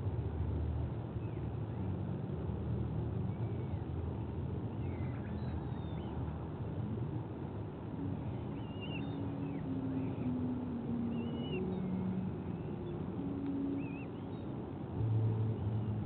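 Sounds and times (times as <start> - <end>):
low drone falling in pitch: 7.9 - 16.0
bird chirps and whistles: 8.6 - 10.3, 11.1 - 12.0.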